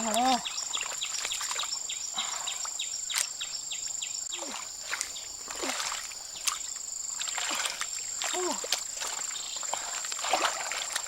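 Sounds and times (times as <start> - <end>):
small water plops: 0.0 - 3.4, 4.4 - 11.0
bird chirping: 0.0 - 5.4.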